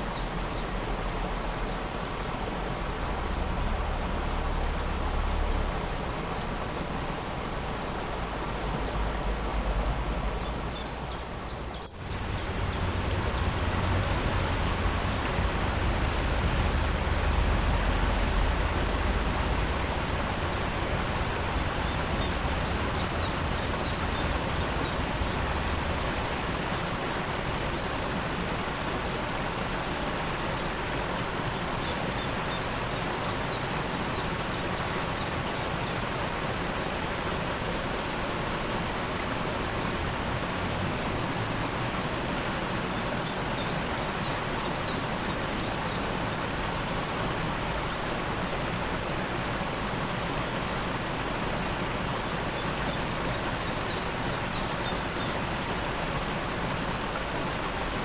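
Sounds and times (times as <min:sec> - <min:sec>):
small bird singing: 0:00.0 - 0:00.7, 0:10.4 - 0:15.3, 0:21.8 - 0:25.6, 0:31.8 - 0:36.0, 0:43.2 - 0:47.0, 0:52.2 - 0:55.4
waterfall rushing: 0:00.0 - 0:58.0.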